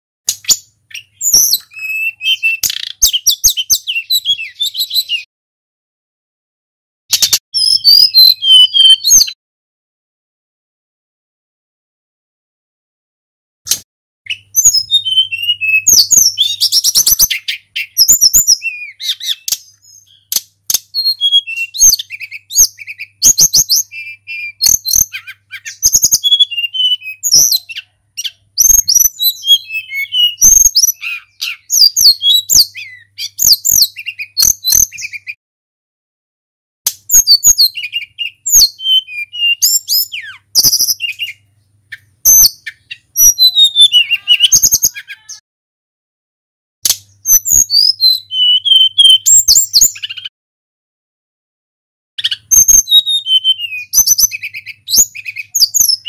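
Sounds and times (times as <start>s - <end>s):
bird singing whistles and chatter: 0.3s - 5.3s, 7.1s - 9.4s, 14.3s - 35.4s, 37.0s - 45.4s, 47.2s - 50.3s, 52.2s - 56.0s.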